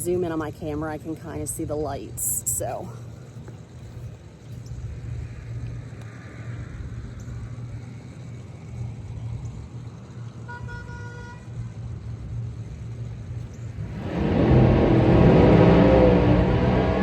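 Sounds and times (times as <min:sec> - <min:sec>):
low outdoor rumble: 0:00.0 - 0:17.0
vehicle horn: 0:10.4 - 0:11.6.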